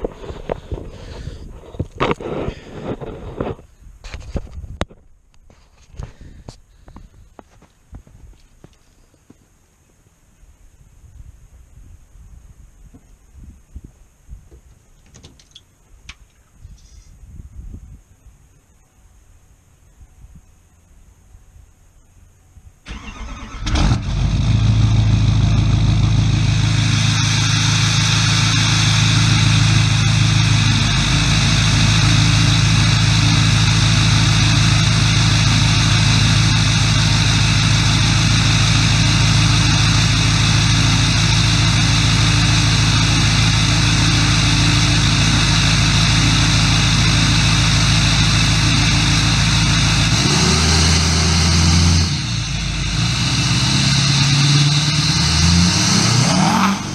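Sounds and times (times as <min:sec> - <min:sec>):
diesel engine cranking and idling: 0:22.8 - 0:56.9.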